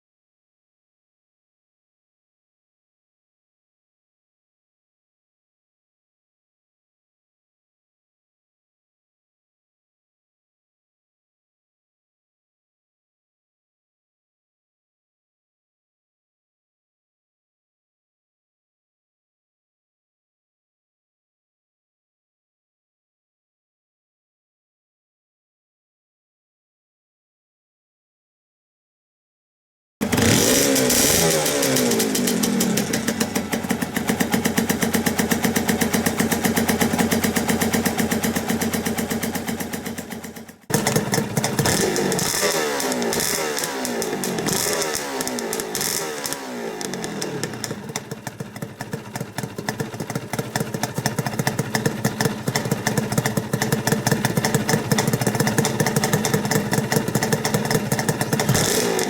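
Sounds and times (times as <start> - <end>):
two-stroke motorcycle engine revving: 30.0 - 59.0.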